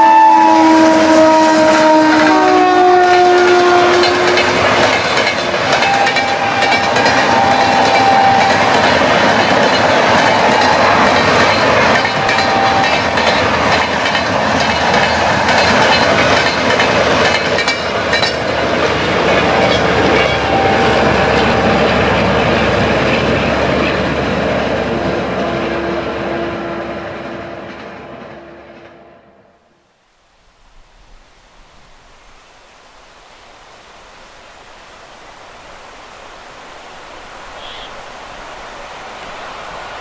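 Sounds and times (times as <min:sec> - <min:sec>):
train wheels rumbling on rail: 0:00.0 - 0:29.1.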